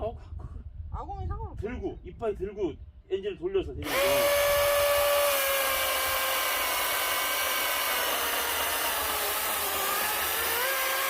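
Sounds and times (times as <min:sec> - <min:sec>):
electric chainsaw cutting log: 0:03.8 - 0:11.0.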